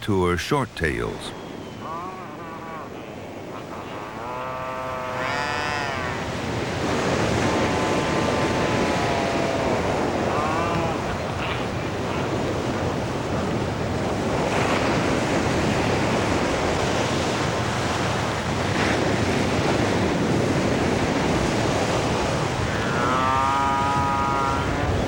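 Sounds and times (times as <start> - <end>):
surf: 0.0 - 25.0
wind: 0.0 - 25.0
albatross call: 1.6 - 12.4, 22.6 - 25.0.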